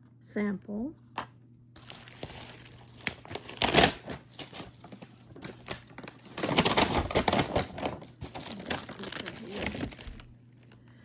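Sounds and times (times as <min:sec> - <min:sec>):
gift bag and packaging crinkling: 0:01.8 - 0:10.8.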